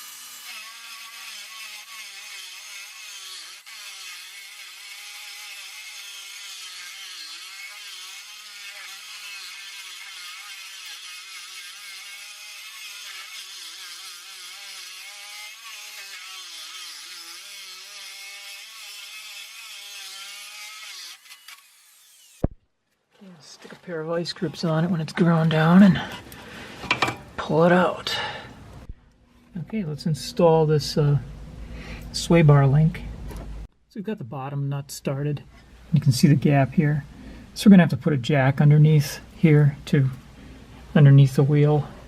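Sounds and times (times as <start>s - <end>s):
power grinder grinding metal: 0.0s - 22.5s, 23.8s - 27.5s.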